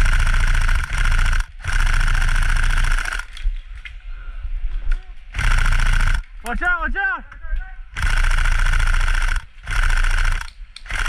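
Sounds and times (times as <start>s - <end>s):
airsoft rifle firing bursts: 0.0s - 3.4s, 5.4s - 6.3s, 8.0s - 11.0s
sharp clicks: 0.0s - 3.5s, 4.9s - 6.6s, 8.0s - 11.0s.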